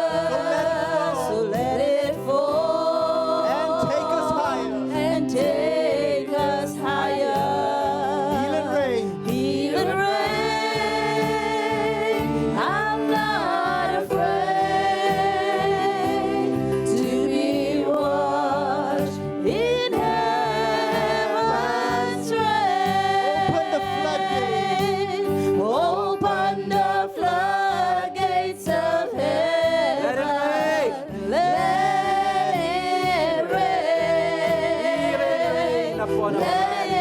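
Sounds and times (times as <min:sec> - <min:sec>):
sustained accompaniment chords: 0:00.0 - 0:27.0
person singing long held notes: 0:15.0 - 0:27.4.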